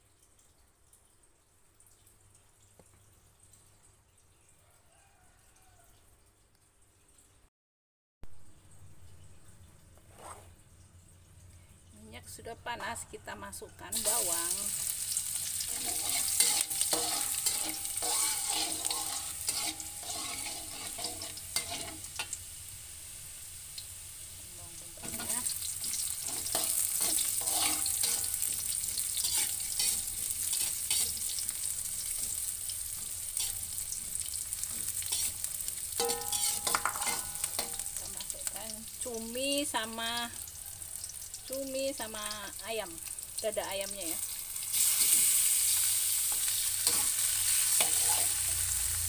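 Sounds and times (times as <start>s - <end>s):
garlic sizzling in hot oil: 12.4s - 49.0s
metal spatula scraping wok: 14.0s - 22.4s, 25.0s - 38.4s, 44.2s - 49.0s.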